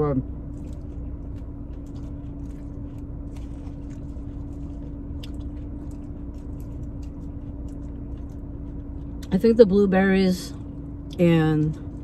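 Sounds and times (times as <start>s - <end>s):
steady low hum: 0.0s - 12.0s
chewing salad: 0.2s - 9.7s.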